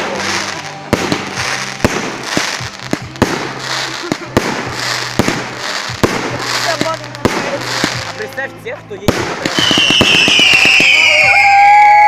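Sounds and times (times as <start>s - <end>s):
fireworks bangs: 0.0s - 8.4s, 9.0s - 12.0s
fireworks crackling hiss: 0.0s - 12.0s.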